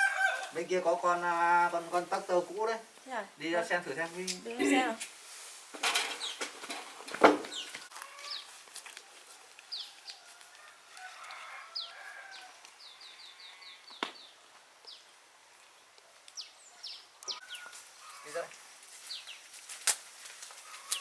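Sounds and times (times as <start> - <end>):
loud rustling knocks: 5.8 - 7.8.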